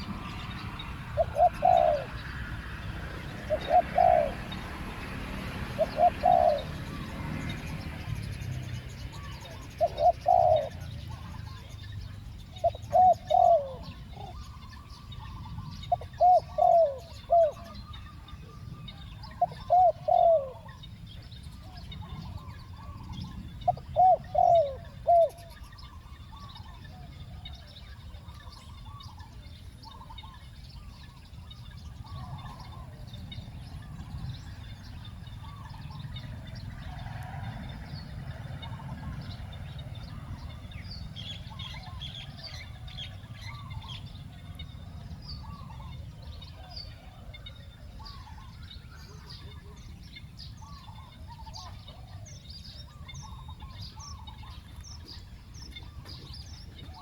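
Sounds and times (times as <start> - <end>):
faint bird calls: 0.0 - 4.8, 5.7 - 57.0
dove cooing: 0.0 - 8.2, 9.1 - 11.7, 12.5 - 20.8, 21.6 - 25.7, 33.9 - 50.0.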